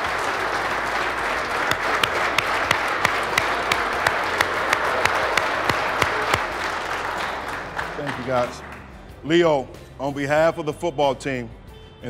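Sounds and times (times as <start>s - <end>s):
people applauding: 0.0s - 9.2s.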